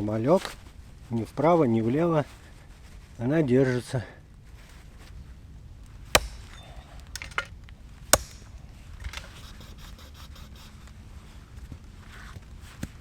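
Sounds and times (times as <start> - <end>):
sharp knocks on wood: 6.2 - 6.6, 8.2 - 8.5.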